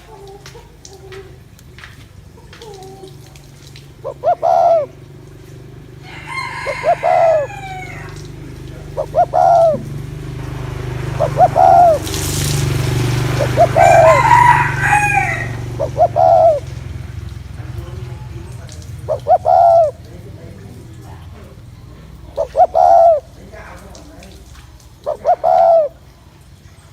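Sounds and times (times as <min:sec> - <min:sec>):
dove cooing: 0:00.0 - 0:26.4
rooster crowing: 0:06.0 - 0:08.4, 0:13.4 - 0:16.6.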